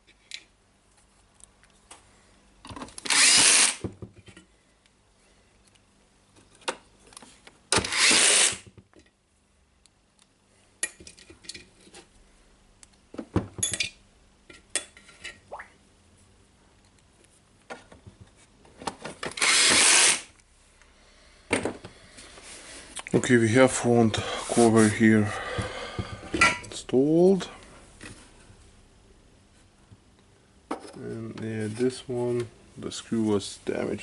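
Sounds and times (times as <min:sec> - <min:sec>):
electric drill-driver running: 0:03.1 - 0:03.8, 0:07.9 - 0:08.6, 0:19.4 - 0:20.2.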